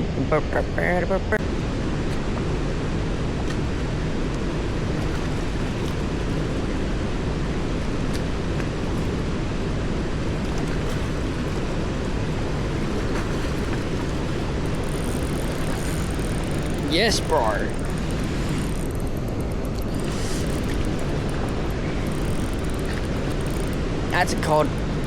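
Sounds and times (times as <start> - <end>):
faint clicks: 17.7 - 24.9.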